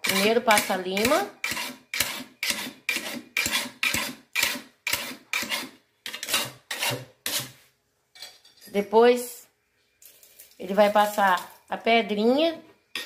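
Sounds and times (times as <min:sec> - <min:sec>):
metal file rasping on blade: 0:00.0 - 0:07.6.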